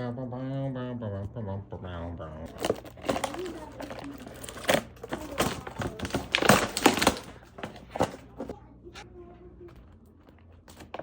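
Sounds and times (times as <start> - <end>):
handling noise: 2.5 - 8.6, 10.3 - 11.0.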